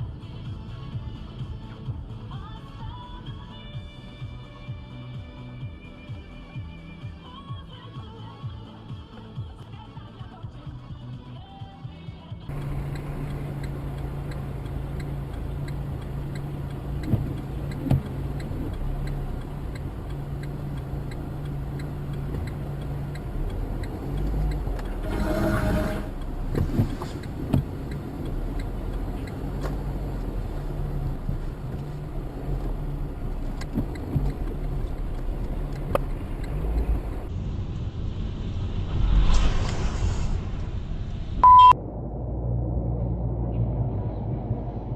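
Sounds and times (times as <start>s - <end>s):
car engine and road drone: 12.4s - 44.9s
small clicks: 12.5s - 25.0s, 26.2s - 37.3s.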